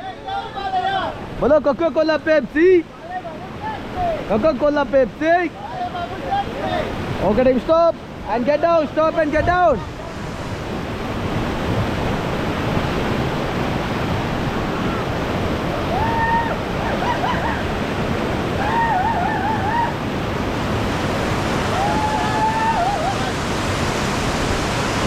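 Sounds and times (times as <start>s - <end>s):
whitewater rushing: 0.1s - 25.0s
people shouting and whooping: 15.8s - 17.8s, 18.5s - 20.1s, 21.6s - 23.5s.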